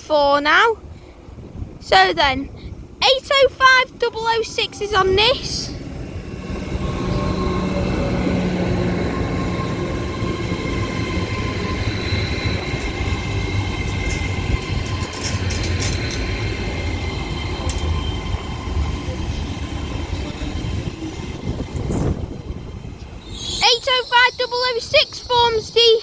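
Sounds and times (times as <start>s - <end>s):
diesel train rumble: 0.8s - 25.8s
train whining tones: 3.0s - 26.0s.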